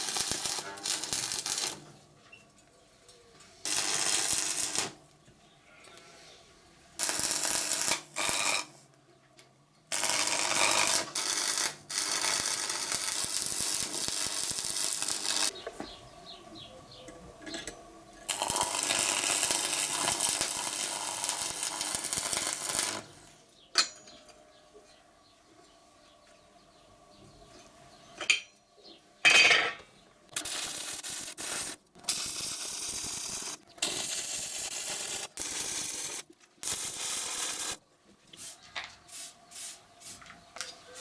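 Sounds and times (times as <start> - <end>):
arc welding crackling hiss: 0.0 - 1.9, 3.6 - 5.0, 7.0 - 8.8, 9.9 - 15.5, 18.3 - 23.4, 30.3 - 37.8, 38.4 - 40.2.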